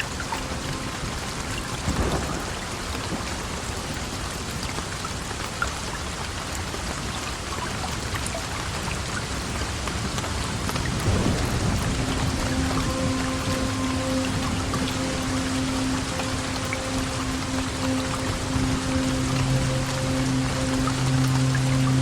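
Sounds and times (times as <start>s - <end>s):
heavy rain falling: 0.0s - 22.0s
distant thunder rumbling: 11.0s - 13.7s.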